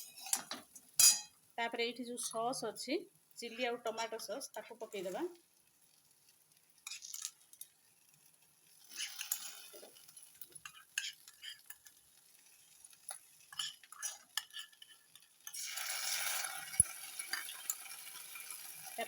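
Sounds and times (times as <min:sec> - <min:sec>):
spoon clinking against pan: 0:00.0 - 0:01.3
spoon stirring and scraping food: 0:00.0 - 0:01.3, 0:04.9 - 0:19.0
food sizzling: 0:00.0 - 0:19.0.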